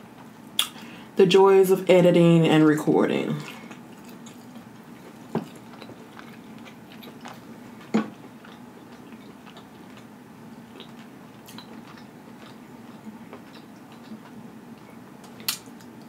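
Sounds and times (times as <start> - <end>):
faint steady hum: 0.0 - 16.0
person chewing food: 3.4 - 16.0.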